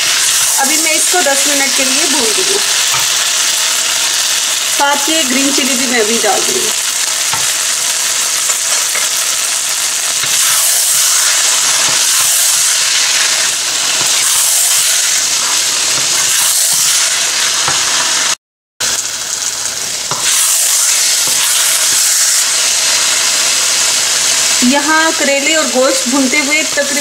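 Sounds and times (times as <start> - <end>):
food sizzling in a wok: 0.0 - 27.0
wooden spatula scraping: 10.2 - 18.4.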